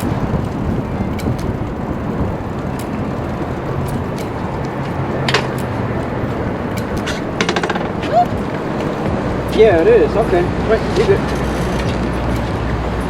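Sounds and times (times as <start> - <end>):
road traffic noise: 0.0 - 13.0
short rattle: 7.0 - 8.2.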